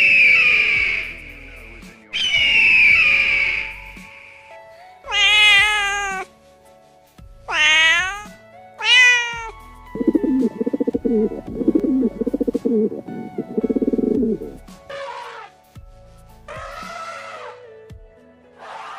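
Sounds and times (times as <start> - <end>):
faint background music: 0.0 - 18.9
kitten meowing: 5.1 - 6.3, 7.5 - 11.8
pigeons cooing: 10.0 - 14.6.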